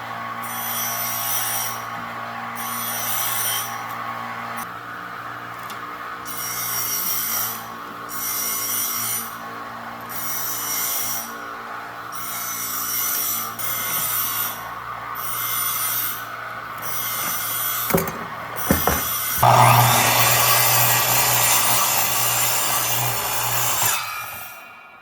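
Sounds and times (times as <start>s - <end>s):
hand tool rasping on wood: 18.7s - 24.0s.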